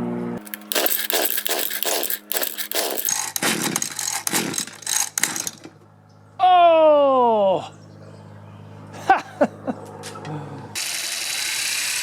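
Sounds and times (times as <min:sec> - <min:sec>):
small engine sputtering: 0:00.4 - 0:05.7.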